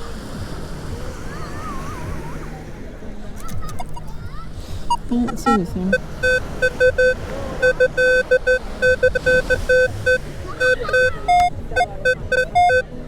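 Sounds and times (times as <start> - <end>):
metal detector beeping: 4.9 - 12.9.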